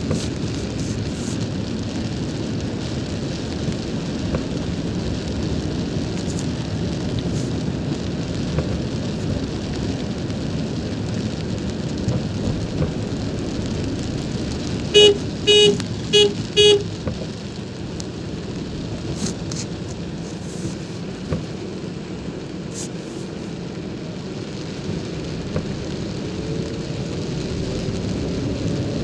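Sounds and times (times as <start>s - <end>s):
car driving rumble: 0.0s - 29.0s
rain on vehicle: 0.0s - 29.0s
vehicle horn short toots: 14.9s - 17.0s.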